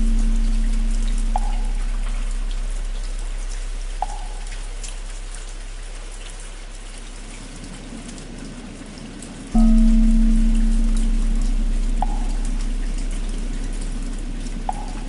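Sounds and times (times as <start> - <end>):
large temple bell hum: 0.0 - 3.8, 9.6 - 15.0
steady rain falling: 0.0 - 15.0.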